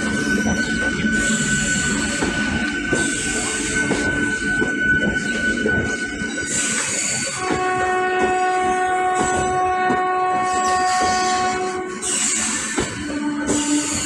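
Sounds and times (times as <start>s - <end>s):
electric train rumble and rail noise: 0.0s - 14.0s
train horn long note: 7.2s - 14.0s.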